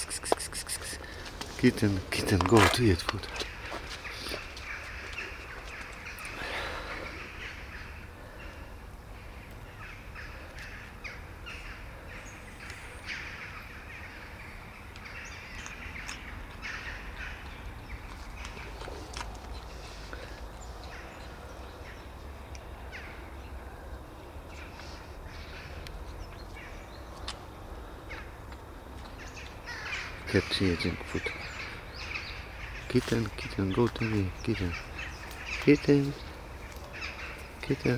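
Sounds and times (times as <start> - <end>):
cats crunching food: 0.0 - 4.5
harsh bird calls: 0.0 - 22.1, 29.1 - 37.9.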